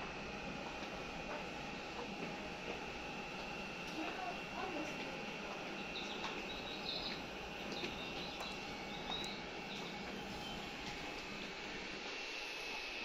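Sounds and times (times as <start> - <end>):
electric train rolling past: 0.0 - 13.0
faint high whine: 5.6 - 13.0.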